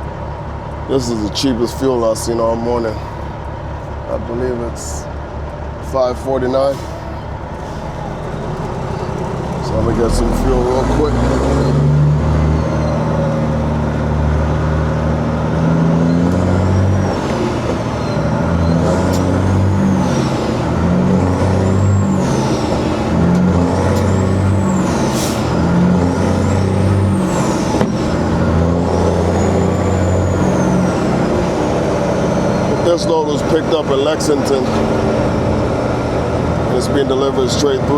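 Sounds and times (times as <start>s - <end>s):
diesel truck engine running: 0.0s - 37.9s
rising and falling high sound: 6.8s - 36.7s.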